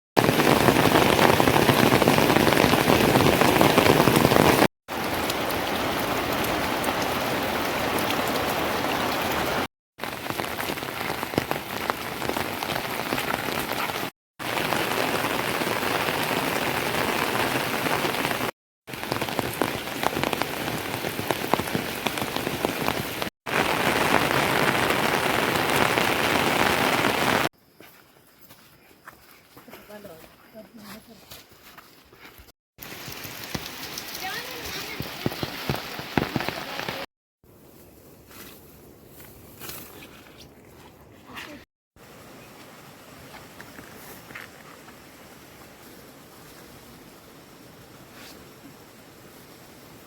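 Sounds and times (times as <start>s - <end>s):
steady rain falling: 0.2s - 27.5s, 32.8s - 37.1s, 42.0s - 50.0s.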